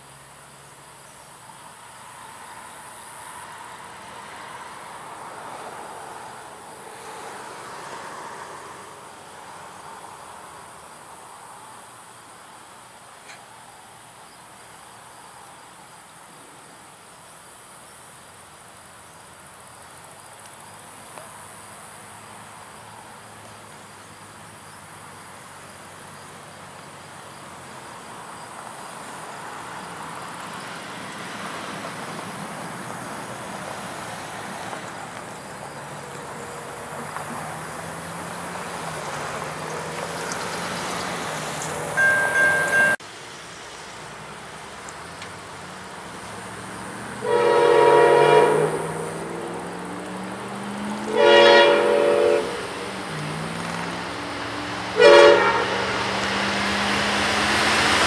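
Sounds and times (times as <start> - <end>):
insects buzzing: 0.0 - 58.0
diesel locomotive approaching: 1.4 - 11.2, 18.9 - 58.0.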